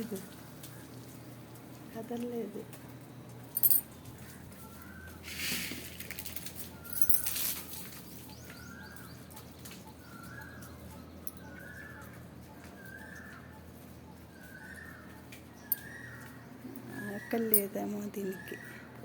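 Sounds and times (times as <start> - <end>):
rustling: 5.2 - 8.2.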